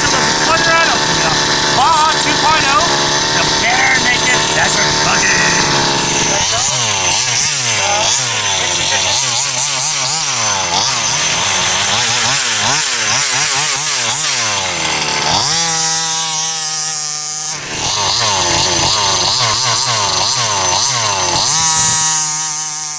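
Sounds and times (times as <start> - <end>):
two-stroke engine revving: 0.0 - 22.9.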